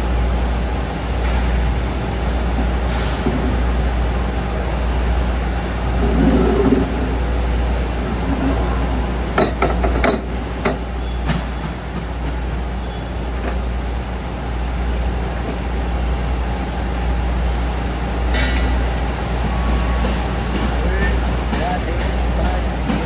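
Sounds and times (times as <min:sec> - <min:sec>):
sharp metallic knocks and clinks: 0:14.8 - 0:15.6, 0:18.3 - 0:18.8.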